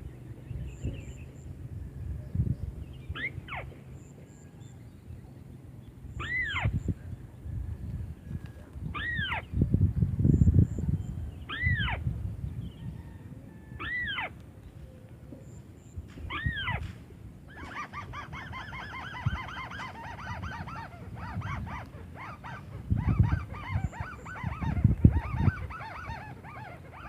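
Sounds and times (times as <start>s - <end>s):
low microphone rumble: 6.4s - 13.7s
bird nasal calls: 17.5s - 27.0s.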